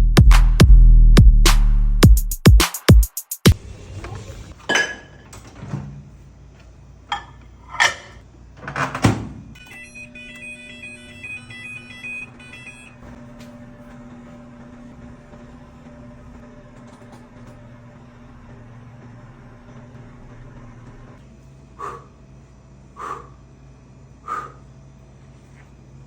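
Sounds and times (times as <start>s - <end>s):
microwave oven humming: 3.6s - 22.9s
high electronic beeps: 9.6s - 13.2s.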